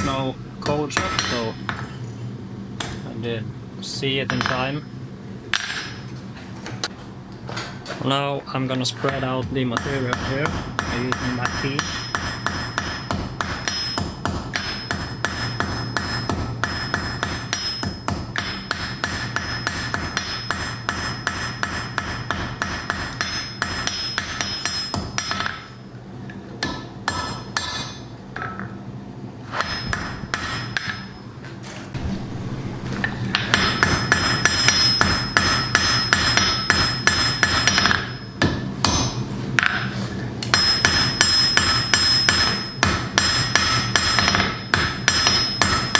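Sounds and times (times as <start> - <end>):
hammer striking iron on anvil: 0.0 - 1.9, 4.3 - 4.8, 5.5 - 6.2, 9.1 - 25.8, 26.6 - 28.7, 29.6 - 31.2, 32.0 - 45.9.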